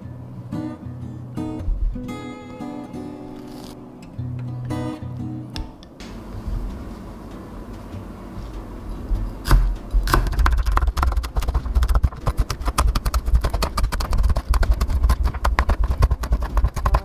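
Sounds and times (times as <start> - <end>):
chopping clicks and taps: 9.4 - 17.0
utensil knocking on bowl: 10.2 - 17.0.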